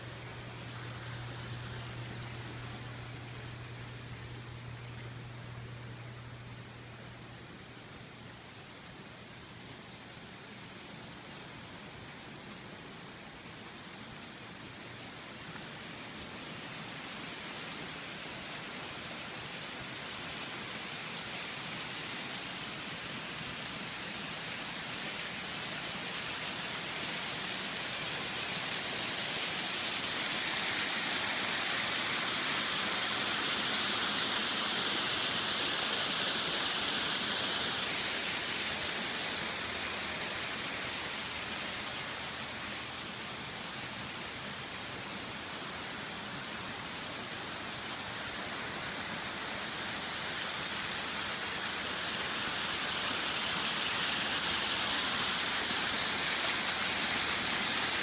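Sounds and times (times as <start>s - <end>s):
waterfall rushing: 16.5s - 58.0s.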